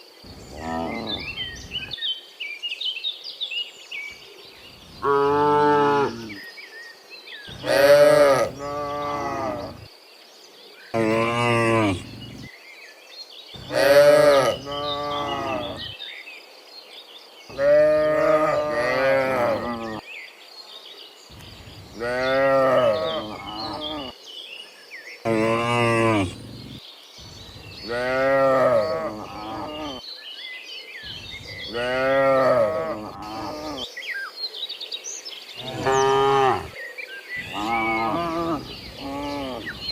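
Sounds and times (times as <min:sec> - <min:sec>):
cows mooing: 0:00.5 - 0:01.5, 0:05.0 - 0:06.4, 0:07.5 - 0:09.8, 0:11.0 - 0:12.5, 0:13.6 - 0:15.9, 0:17.5 - 0:20.0, 0:22.0 - 0:24.1, 0:25.3 - 0:26.8, 0:27.9 - 0:30.0, 0:31.7 - 0:33.8, 0:35.6 - 0:36.8, 0:37.4 - 0:39.9.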